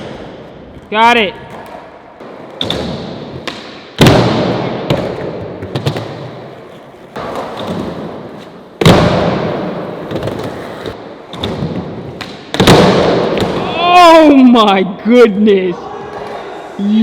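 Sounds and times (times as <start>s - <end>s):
skateboard wheels rolling: 5.0s - 12.2s
skateboard hitting the ground: 8.8s - 13.6s.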